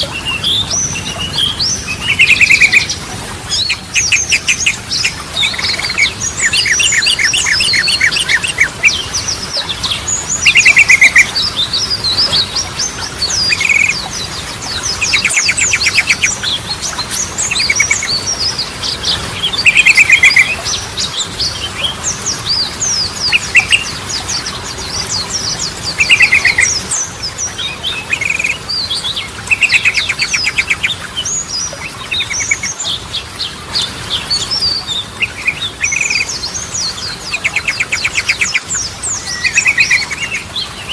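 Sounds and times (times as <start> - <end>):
high bird chirping: 0.0 - 14.1, 14.7 - 18.5, 25.1 - 33.0, 34.3 - 40.9.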